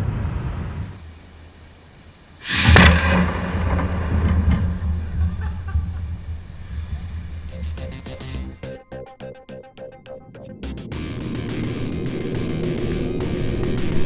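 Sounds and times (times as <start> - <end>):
machine humming: 7.4 - 14.0.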